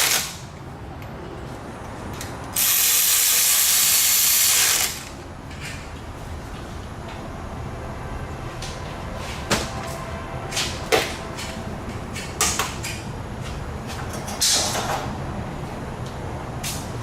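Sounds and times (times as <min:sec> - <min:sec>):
steady low hum: 0:04.8 - 0:17.0
tools knocking and clattering: 0:13.9 - 0:15.1.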